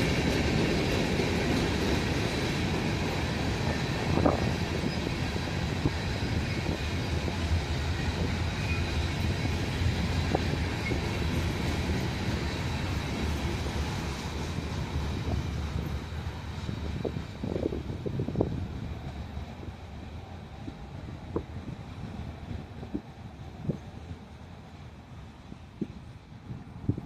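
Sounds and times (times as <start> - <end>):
train cars rolling on rails: 0.0 - 27.0.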